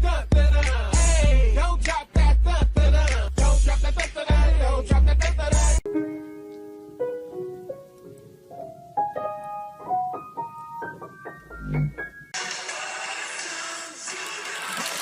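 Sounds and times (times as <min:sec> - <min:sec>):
piano notes rising: 0:05.9 - 0:12.5
steady hiss: 0:06.1 - 0:11.4.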